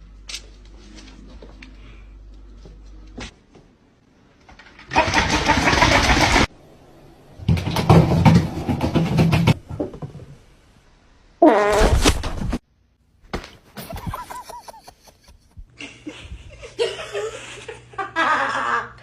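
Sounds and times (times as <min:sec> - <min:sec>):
fart sound effect: 0:11.4 - 0:12.6.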